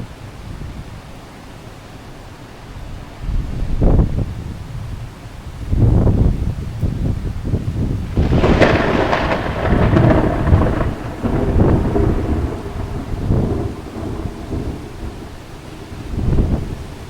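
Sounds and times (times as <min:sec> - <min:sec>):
thunderclap crash and rumble: 0:07.8 - 0:17.0.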